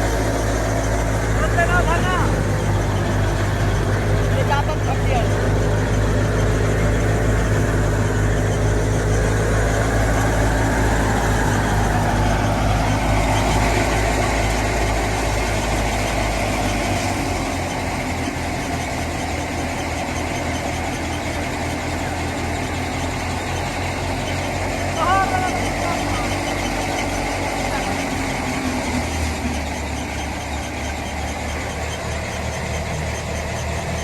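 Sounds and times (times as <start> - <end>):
tractor engine rumbling: 0.0 - 34.0.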